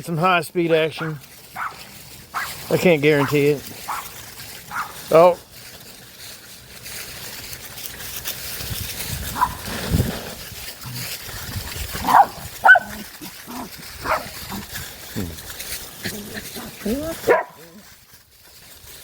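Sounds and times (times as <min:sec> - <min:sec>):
dry leaves rustling: 0:00.0 - 0:19.0
dogs playing roughly: 0:00.9 - 0:19.0
dog barks and yelps: 0:01.0 - 0:02.6, 0:03.2 - 0:04.1, 0:04.7 - 0:05.0, 0:09.3 - 0:09.6, 0:12.0 - 0:14.4, 0:16.1 - 0:17.9.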